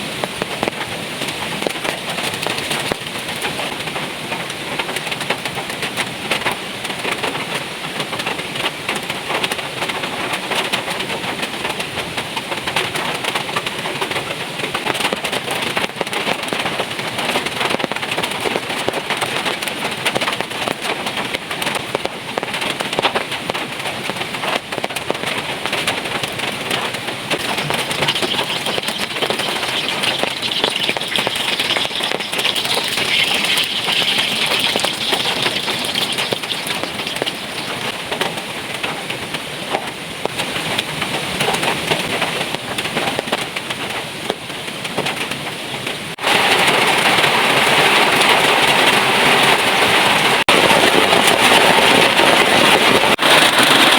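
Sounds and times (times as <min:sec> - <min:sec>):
heavy rain falling: 0:00.0 - 0:53.9.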